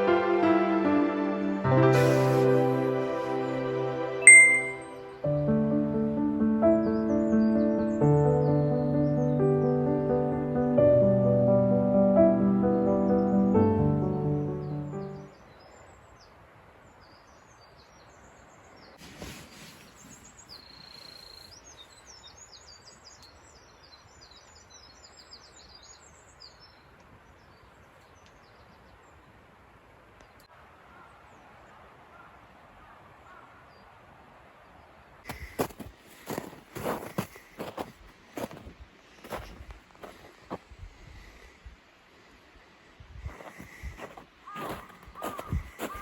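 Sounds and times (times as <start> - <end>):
small birds chirping: 14.1 - 29.4, 35.2 - 41.9, 43.2 - 46.0
brief rustle: 19.0 - 20.4.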